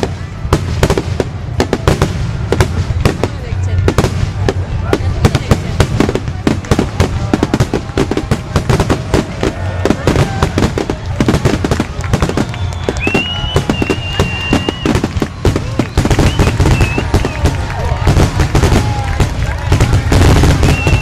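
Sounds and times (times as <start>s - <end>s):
fireworks bangs and crackles: 0.0s - 21.0s
high steady whistle: 12.2s - 17.4s, 20.6s - 21.0s.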